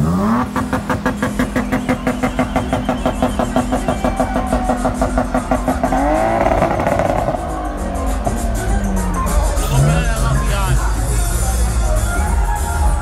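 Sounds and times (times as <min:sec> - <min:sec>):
engine revving: 0:00.0 - 0:10.3
car engine throbbing: 0:00.0 - 0:13.0.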